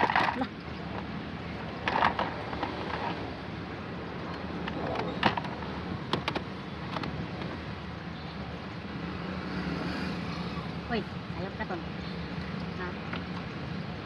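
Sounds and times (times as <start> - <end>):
plastic clicks and knocks: 4.6 - 7.5.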